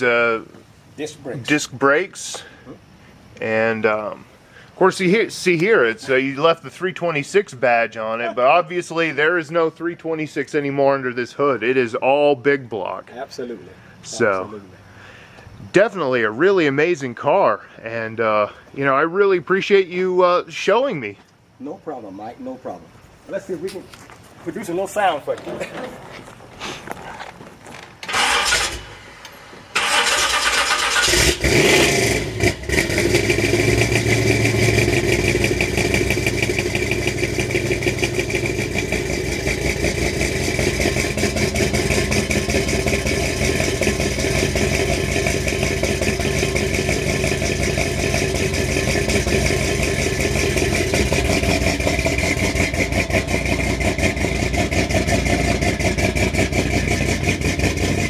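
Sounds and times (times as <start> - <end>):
starter cranking engine: 28.0 - 29.0, 29.7 - 58.0
engine idling: 28.1 - 58.0.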